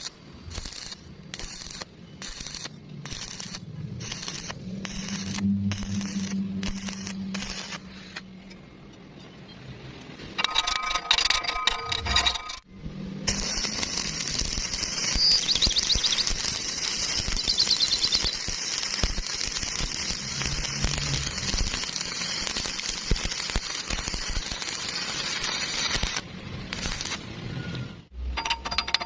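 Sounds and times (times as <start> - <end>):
welding arc crackling: 0.0 - 8.2, 13.1 - 27.4.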